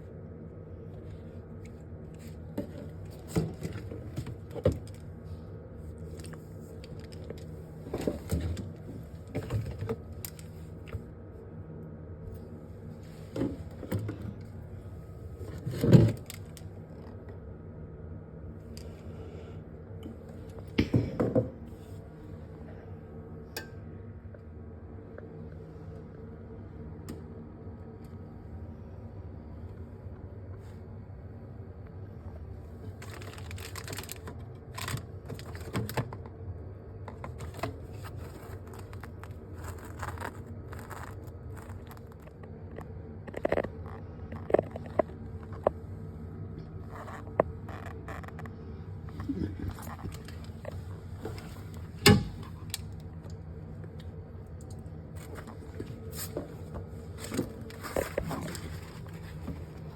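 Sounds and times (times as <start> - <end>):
steady low hum: 0.0 - 59.9
objects knocking and clattering: 20.8 - 21.6.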